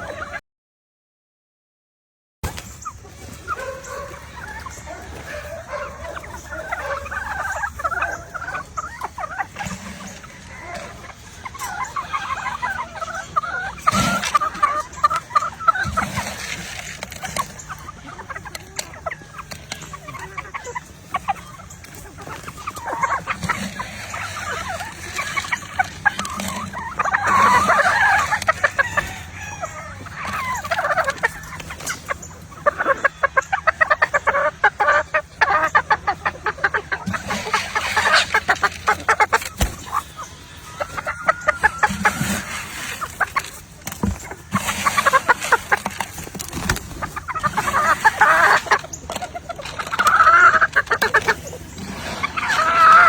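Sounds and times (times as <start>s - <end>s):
chickens clucking: 0.0s - 0.4s, 2.4s - 53.0s
rooster crowing: 27.3s - 30.3s.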